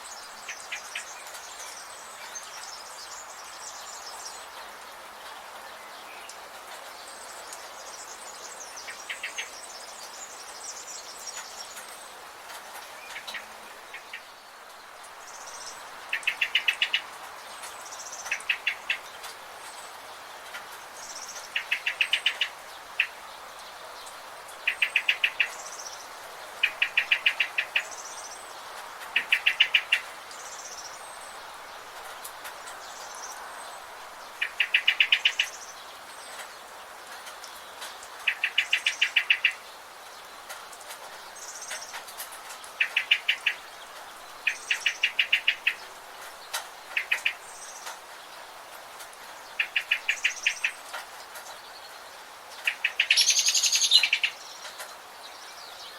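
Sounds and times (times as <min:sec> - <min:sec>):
steady background hiss: 0:00.0 - 0:55.9
bird trilling: 0:52.7 - 0:54.4
faint high bird chirps: 0:52.7 - 0:54.8.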